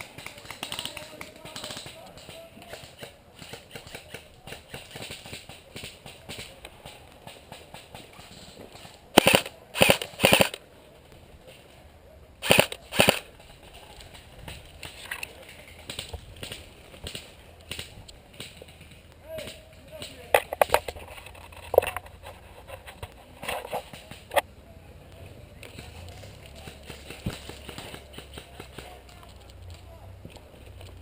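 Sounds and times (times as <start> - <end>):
airsoft gun firing bursts: 9.1 - 10.6, 12.4 - 13.3.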